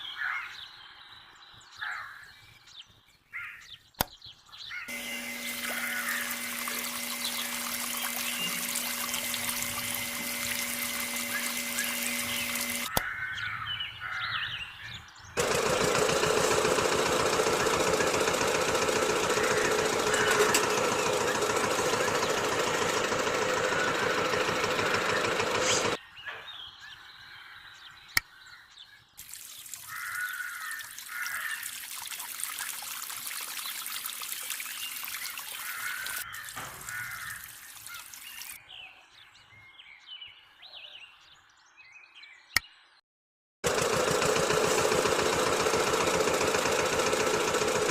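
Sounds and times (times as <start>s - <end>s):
birds chirping: 0.0s - 43.0s
water trickling and pouring: 4.9s - 12.9s, 29.2s - 38.6s
fast even rattle: 4.9s - 13.0s, 15.4s - 26.0s, 43.7s - 47.9s.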